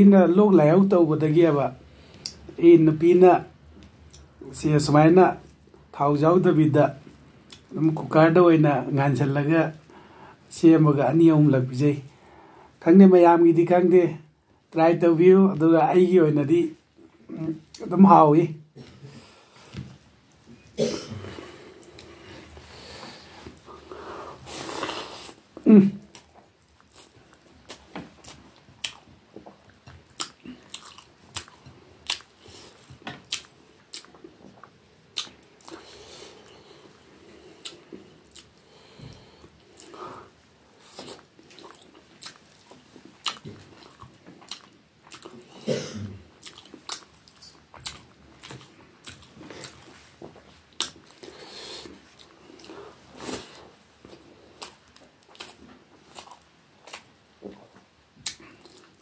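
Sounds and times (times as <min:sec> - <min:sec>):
person chewing: 0:20.6 - 0:59.0.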